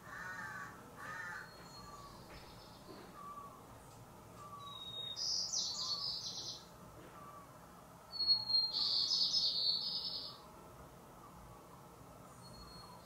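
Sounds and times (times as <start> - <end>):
bird whistling and trilling: 4.4 - 6.5, 8.1 - 10.3, 12.4 - 13.0.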